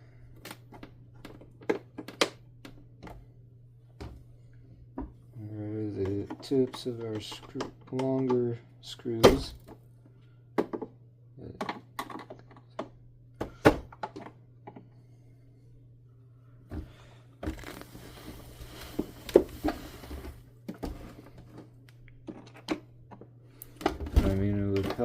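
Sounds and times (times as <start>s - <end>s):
plastic parts clicking and knocking: 0.4s - 3.2s, 6.0s - 8.6s, 10.6s - 14.8s, 20.7s - 25.0s
plastic scraping and rustling: 17.4s - 21.7s.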